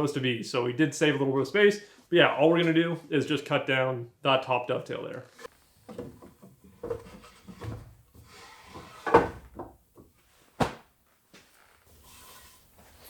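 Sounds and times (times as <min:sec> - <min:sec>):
wooden drawer knocking: 0:05.9 - 0:09.8.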